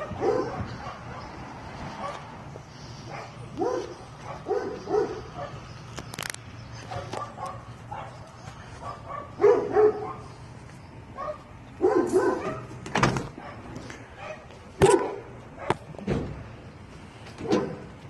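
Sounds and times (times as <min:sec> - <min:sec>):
dog barking: 0:00.0 - 0:01.4, 0:02.0 - 0:02.3, 0:03.1 - 0:05.6, 0:06.9 - 0:10.3, 0:11.2 - 0:12.8, 0:13.4 - 0:15.9, 0:17.4 - 0:17.9.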